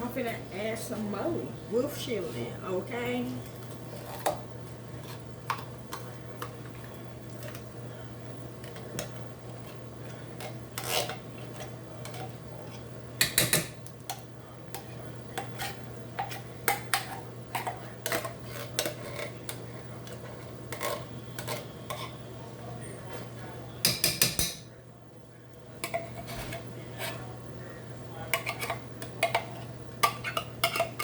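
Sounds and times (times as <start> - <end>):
steady low hum: 0.0 - 31.0
spoon clinking and scraping pot: 10.4 - 22.2, 25.8 - 27.3, 28.3 - 31.0.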